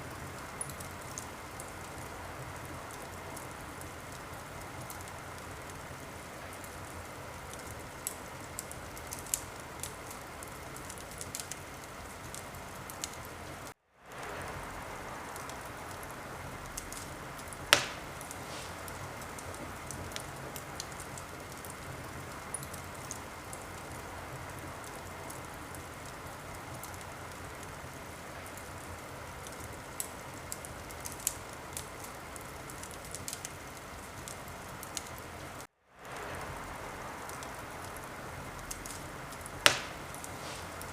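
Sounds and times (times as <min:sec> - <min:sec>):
wood fire crackling: 0:00.0 - 0:40.9
loud fire pop: 0:17.7 - 0:19.0, 0:39.6 - 0:40.9.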